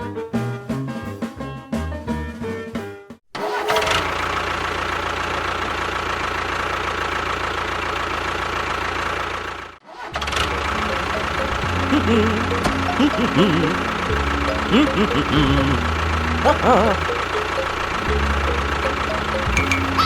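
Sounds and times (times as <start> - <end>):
music: 0.0 - 3.2, 10.5 - 20.0
engine humming: 3.4 - 20.0.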